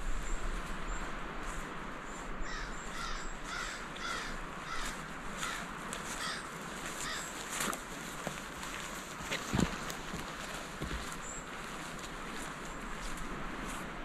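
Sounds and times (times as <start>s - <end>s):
footsteps on forest floor: 0.0s - 14.0s
bird calling harsh notes: 2.4s - 5.6s, 6.2s - 7.4s.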